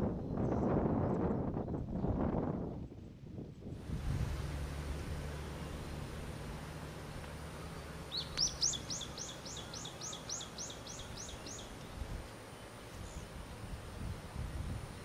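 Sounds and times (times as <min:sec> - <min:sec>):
bird calling high notes: 0:07.4 - 0:11.8.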